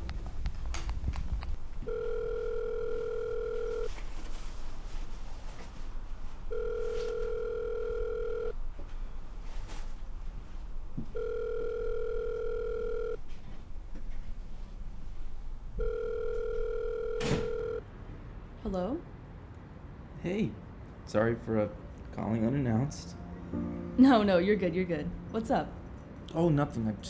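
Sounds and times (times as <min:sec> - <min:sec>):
telephone ringback tone: 0:01.8 - 0:04.0, 0:06.5 - 0:08.6, 0:11.1 - 0:13.2, 0:15.8 - 0:17.8.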